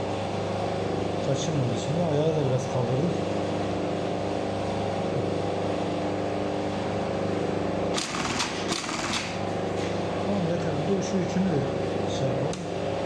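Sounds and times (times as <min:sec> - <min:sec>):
sewing machine clatter: 0:08.0 - 0:09.3
sewing machine motor humming: 0:08.0 - 0:09.4.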